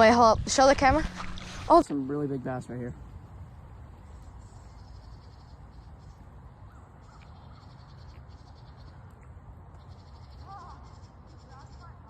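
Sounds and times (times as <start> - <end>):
wind rumble on microphone: 0.0 - 1.9
faint insect chirring: 0.5 - 12.0
faint short bird calls: 4.6 - 12.0.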